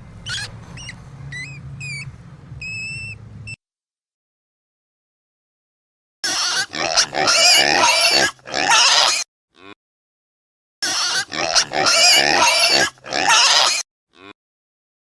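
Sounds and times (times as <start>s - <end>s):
harsh wavering animal calls: 0.2s - 3.1s, 6.2s - 9.8s, 10.8s - 14.3s.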